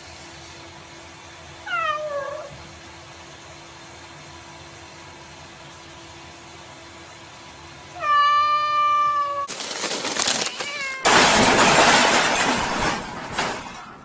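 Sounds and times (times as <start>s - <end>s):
cat meowing: 1.6s - 2.6s, 8.0s - 9.5s, 10.4s - 11.1s.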